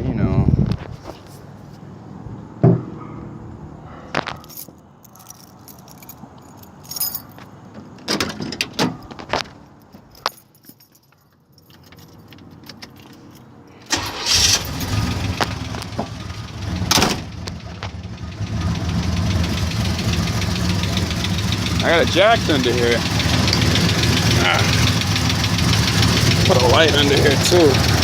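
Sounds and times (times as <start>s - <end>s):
keys jingling: 4.3s - 7.6s, 9.0s - 15.0s
car engine cranking and idling: 13.9s - 28.0s
fast steady engine clicking: 14.0s - 28.0s.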